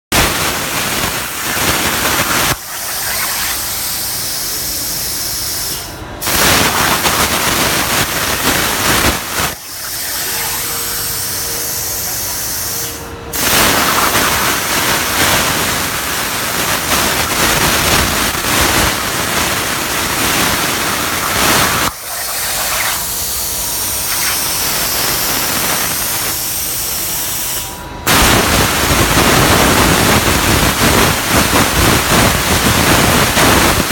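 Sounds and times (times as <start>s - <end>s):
plasma cutter torch hissing: 0.4s - 26.7s.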